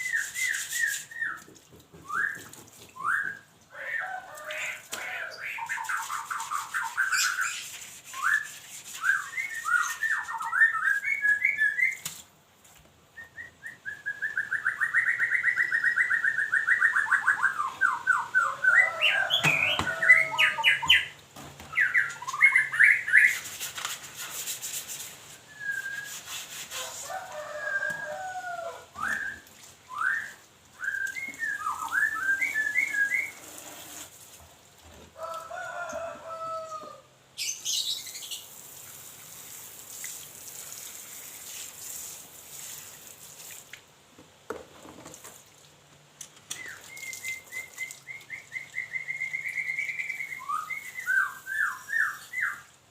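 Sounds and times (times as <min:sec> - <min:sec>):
songbird singing: 0:13.2 - 0:23.4, 0:27.4 - 0:33.4, 0:46.5 - 0:52.8.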